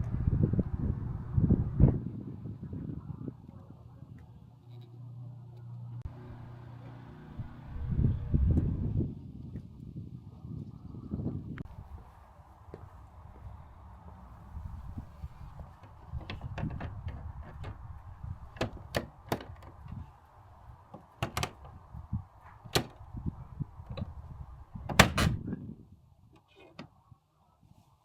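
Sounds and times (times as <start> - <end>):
low rumble: 0.0 - 4.5, 7.3 - 15.8.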